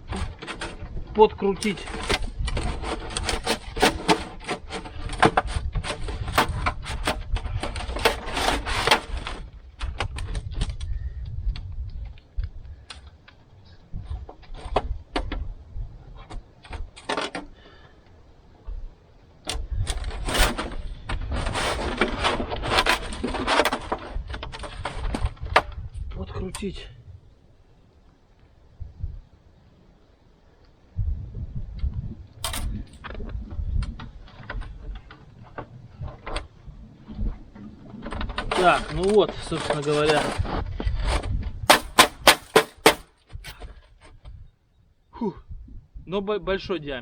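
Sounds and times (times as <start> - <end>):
sheet metal clattering and crinkling: 0.0 - 10.7, 16.2 - 17.9, 19.4 - 26.6, 32.4 - 44.3.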